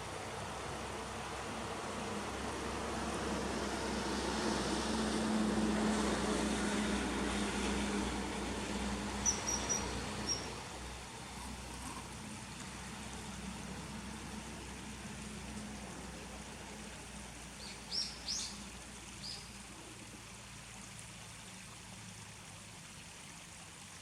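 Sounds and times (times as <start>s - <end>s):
vehicle passing: 1.0s - 18.5s
small bird chirping: 9.2s - 10.5s.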